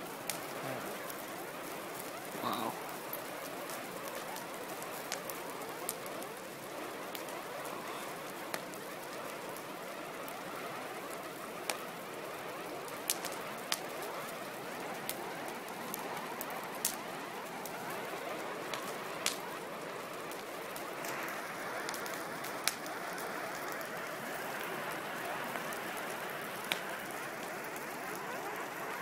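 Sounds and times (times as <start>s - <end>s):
fire hissing and crackling: 0.0s - 29.0s.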